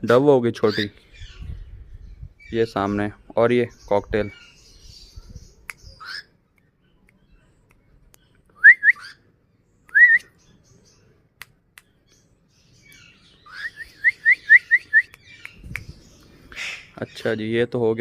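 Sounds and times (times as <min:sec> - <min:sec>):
cockatiel whistling: 0:08.6 - 0:09.2, 0:13.4 - 0:15.2.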